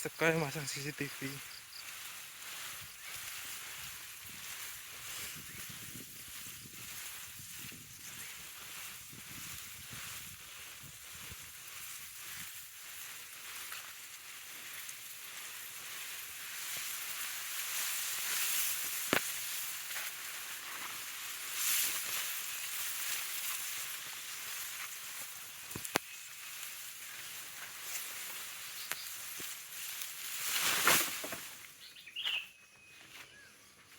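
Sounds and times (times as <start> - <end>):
grass rustling: 0.0 - 33.9.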